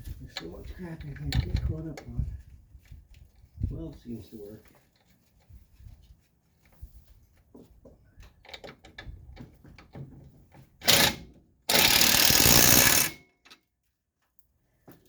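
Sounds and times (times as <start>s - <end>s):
impact wrench running: 10.8s - 13.2s.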